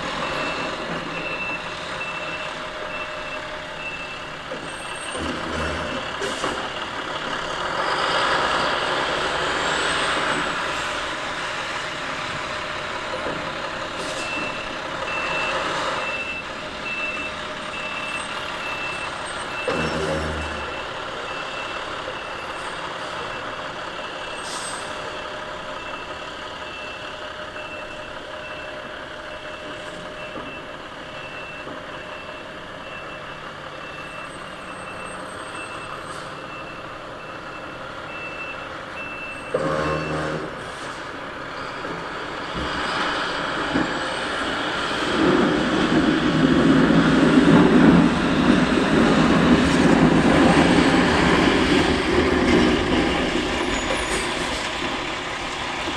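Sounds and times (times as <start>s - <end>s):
reverse alarm beeping: 0.0s - 6.8s, 14.0s - 40.5s
snow plowing noise: 0.0s - 26.9s, 39.0s - 55.9s
truck engine running: 0.0s - 55.9s.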